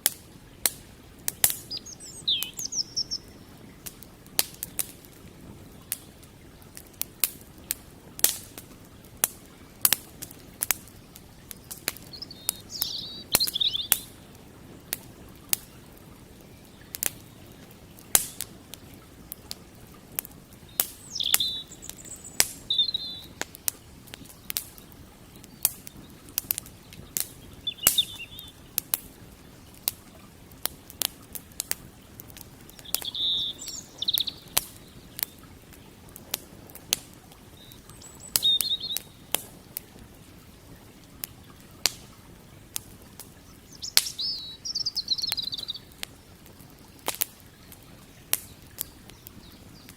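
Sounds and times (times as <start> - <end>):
campfire wood crackling and popping: 0.0 - 49.9
small bird chirping: 1.5 - 3.5, 11.5 - 14.2, 20.6 - 26.2, 26.9 - 28.7, 32.7 - 35.4, 37.5 - 39.4, 43.7 - 46.1.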